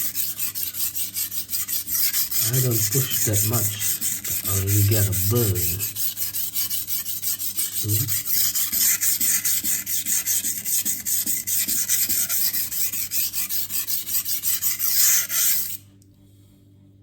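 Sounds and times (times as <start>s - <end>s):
knife scraping on sharpening stone: 0.0s - 10.2s.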